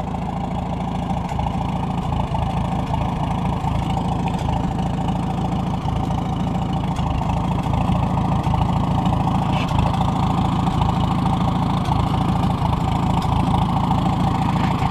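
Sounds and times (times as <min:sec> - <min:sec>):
tractor engine running: 0:00.0 - 0:14.9.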